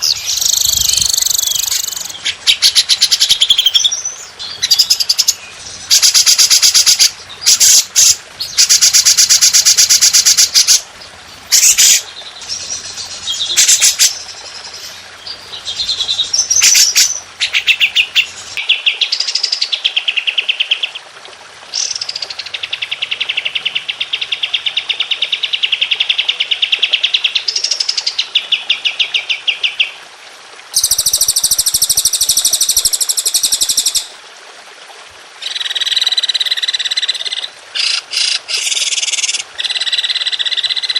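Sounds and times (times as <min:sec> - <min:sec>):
songbirds trilling: 0:00.0 - 0:20.8.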